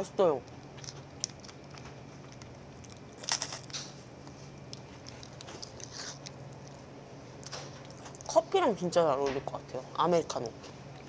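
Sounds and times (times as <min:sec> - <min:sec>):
crunchy biscuit chewing: 0:00.4 - 0:08.4.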